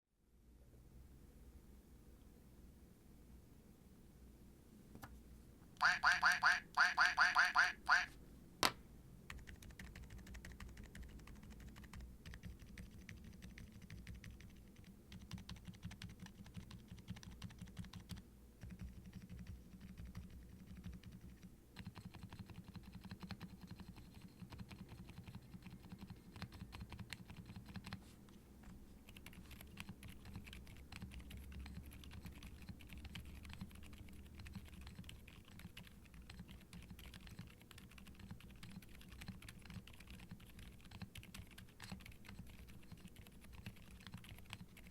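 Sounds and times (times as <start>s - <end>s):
quiet mechanical keyboard typing: 9.3s - 28.0s, 28.6s - 44.9s.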